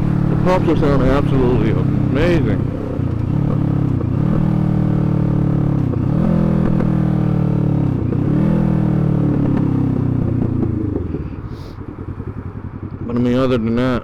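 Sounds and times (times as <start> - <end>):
exhaust pops: 0.0 - 13.2
motorcycle engine revving: 0.0 - 14.0.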